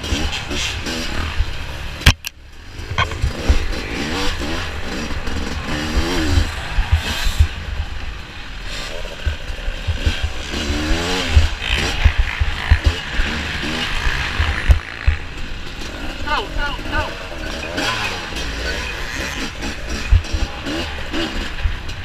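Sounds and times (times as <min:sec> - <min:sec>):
dirt bike engine revving: 0:00.0 - 0:22.0
sharp click: 0:02.0 - 0:03.3.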